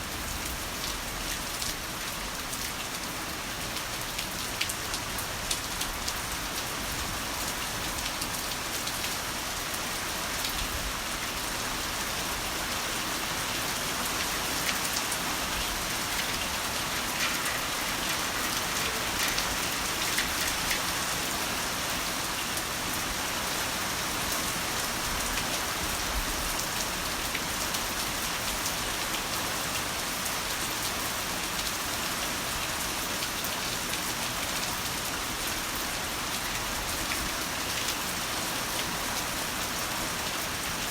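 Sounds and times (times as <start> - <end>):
heavy rain falling: 0.0 - 40.9
raindrops ticking on a surface: 0.1 - 40.9.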